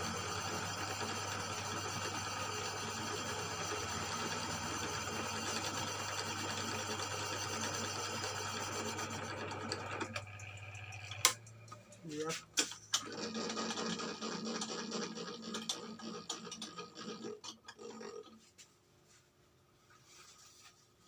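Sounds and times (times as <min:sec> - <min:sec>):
tool grinding inside cylinder: 0:00.0 - 0:11.8, 0:13.0 - 0:18.4
boring machine motor hum: 0:00.0 - 0:12.3.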